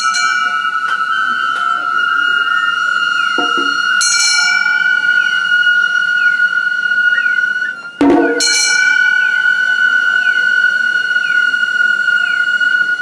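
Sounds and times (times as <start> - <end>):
bamboo flute long high note: 0.0 - 13.0
hand gong struck: 3.4 - 5.4, 8.0 - 9.6.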